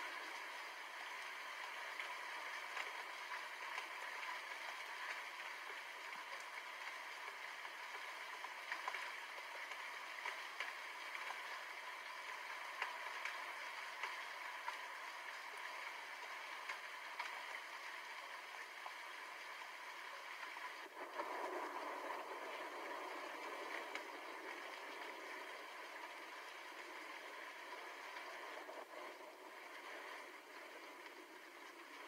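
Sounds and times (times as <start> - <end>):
sharp raindrop ticks: 0.0 - 32.0
steady rainfall: 0.0 - 32.0.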